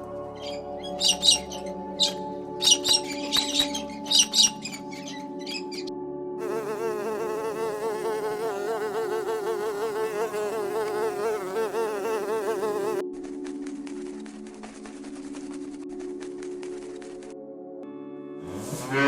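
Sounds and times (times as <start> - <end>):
flying insect buzzing: 6.4 - 13.0.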